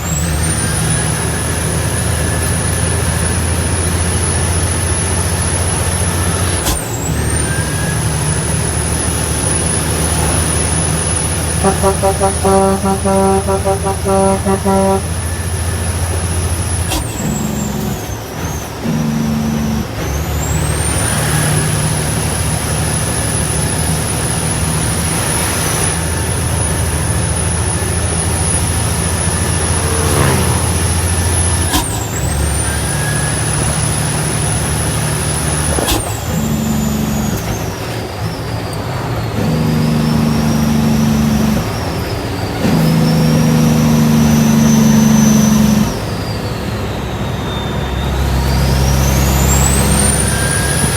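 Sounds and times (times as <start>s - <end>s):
truck diesel engine shifting gears: 0.0s - 50.9s
high whine: 25.8s - 37.9s.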